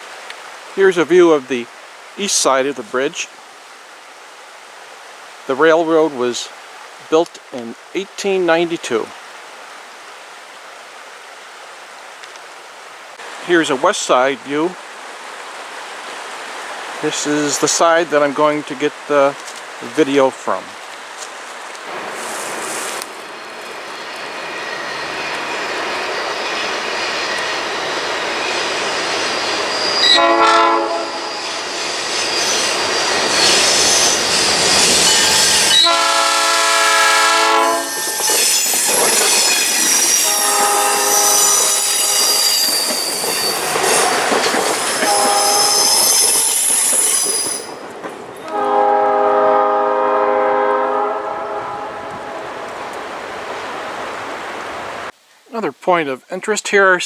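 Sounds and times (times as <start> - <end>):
train wheels rumbling on rail: 21.7 - 55.1
high wheel squeal: 22.0 - 48.6
locomotive air horn: 29.8 - 31.6, 34.4 - 39.1, 39.9 - 44.3, 44.9 - 47.7, 48.4 - 52.9.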